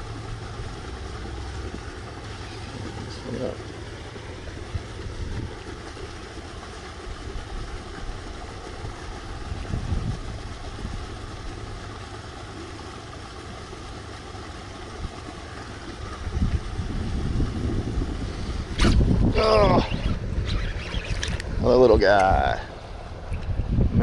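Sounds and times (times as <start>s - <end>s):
wind buffeting microphone: 4.4s - 11.8s, 14.9s - 24.0s.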